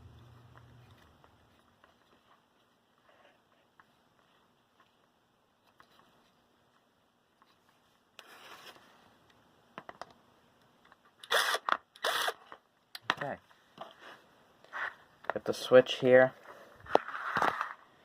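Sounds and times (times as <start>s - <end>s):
soft rustle: 0.7s - 9.2s.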